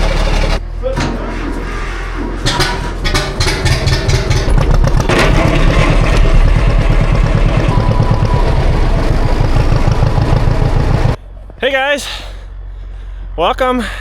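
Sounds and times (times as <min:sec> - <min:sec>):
tractor engine cranking and starting: 0:00.0 - 0:01.5, 0:02.4 - 0:12.1.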